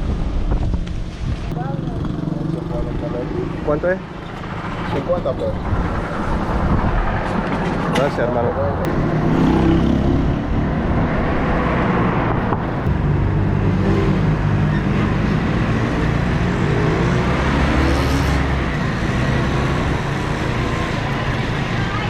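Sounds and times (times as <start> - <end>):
wind rush on microphone: 0.0 - 2.2, 4.6 - 17.9
road noise: 0.0 - 22.0.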